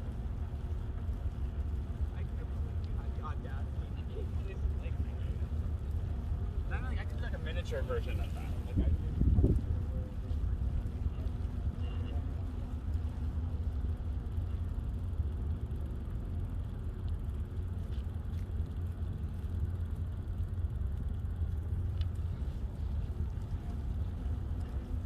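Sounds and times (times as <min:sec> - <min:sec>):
faint clicks: 0:00.0 - 0:07.2, 0:10.2 - 0:25.0
bicycle rolling noise: 0:00.0 - 0:25.0
wind buffeting microphone: 0:05.0 - 0:15.6.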